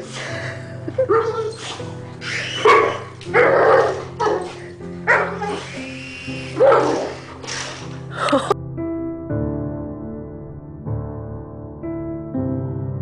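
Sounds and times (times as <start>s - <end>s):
dog barking: 1.0s - 7.3s.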